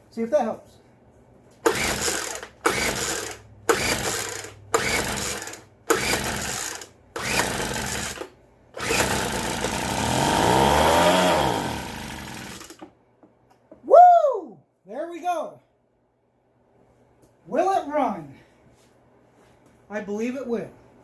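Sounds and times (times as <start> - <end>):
recoil starter pulls: 1.6 - 12.9
leaf blower engine running: 1.7 - 8.2, 8.8 - 12.8.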